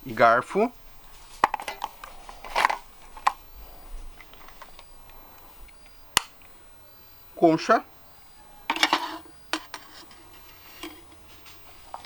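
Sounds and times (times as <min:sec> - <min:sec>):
sharp click: 0:04.1 - 0:06.6
metal cookware clinking: 0:08.6 - 0:10.0
cookware clattering: 0:08.6 - 0:11.1.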